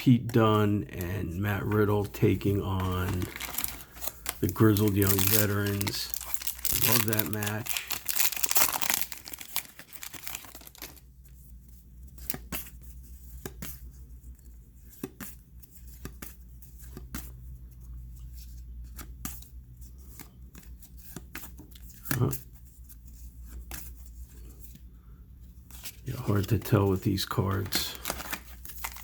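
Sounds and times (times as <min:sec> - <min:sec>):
wrapper tearing and crinkling: 0:02.8 - 0:11.0, 0:27.9 - 0:29.0
cards clicking and sliding: 0:27.3 - 0:29.0.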